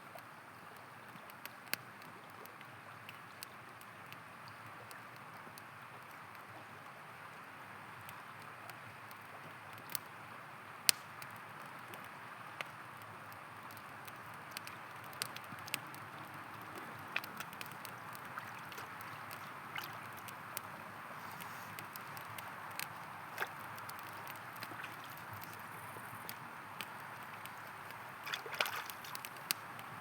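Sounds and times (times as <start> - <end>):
flowing river water: 0.0 - 30.0
campfire popping and crackling: 0.1 - 30.0.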